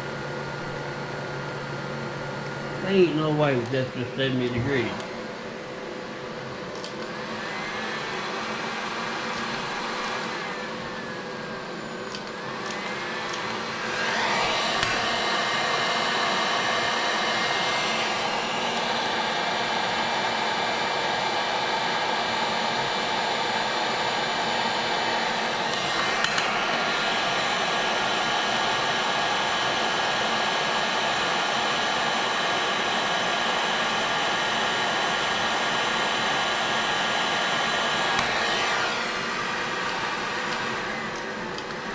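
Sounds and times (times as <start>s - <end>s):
heat gun blowing hot air: 12.1s - 20.7s, 23.4s - 41.9s.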